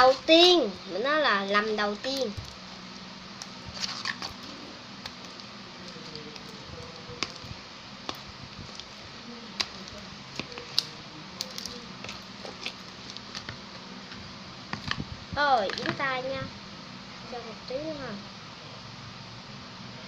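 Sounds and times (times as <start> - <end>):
slime squelching: 0.0 - 16.0
steady low hum: 0.0 - 20.0.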